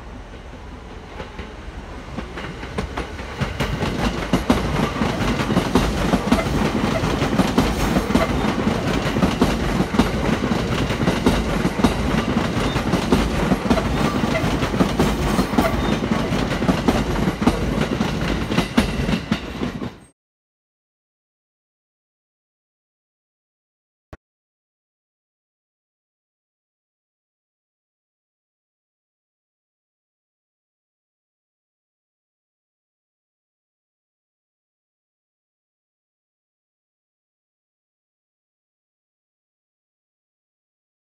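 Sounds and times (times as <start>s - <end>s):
electric train passing: 0.0s - 20.1s
wheels clattering over rail joints: 0.5s - 20.1s.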